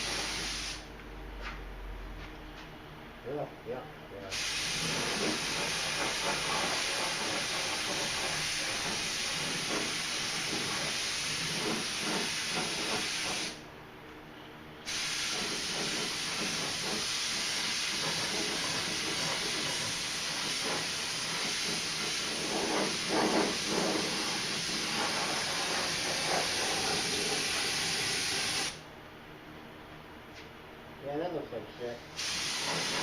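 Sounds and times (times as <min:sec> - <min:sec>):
paint spray gun hissing: 0:00.0 - 0:00.9, 0:04.3 - 0:13.6, 0:14.9 - 0:28.8, 0:32.2 - 0:33.0.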